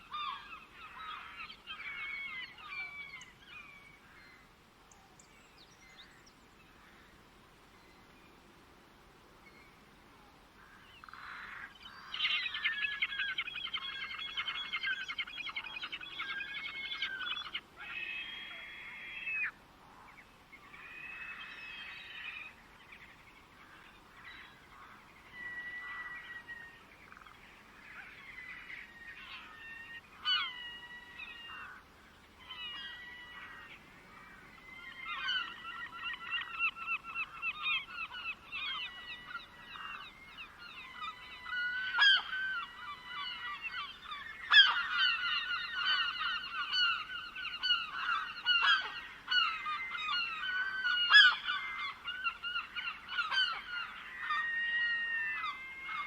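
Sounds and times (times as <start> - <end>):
birds chattering and calling: 32.4 - 56.0.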